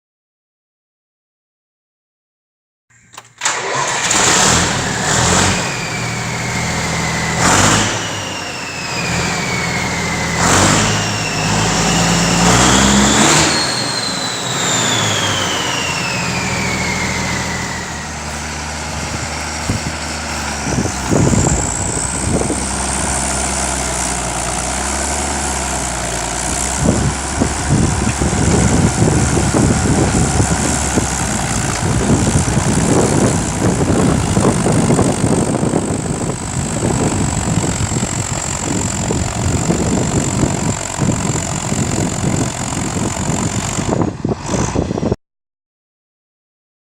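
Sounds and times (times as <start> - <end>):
diesel tractor engine revving: 3.4 - 45.2
turbo whistle: 5.6 - 18.1.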